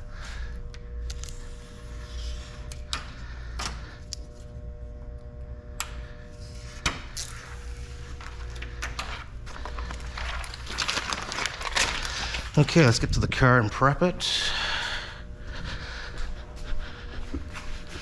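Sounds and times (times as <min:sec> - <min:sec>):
low hum: 0:00.0 - 0:18.0
film clicking and crinkling: 0:08.1 - 0:12.7.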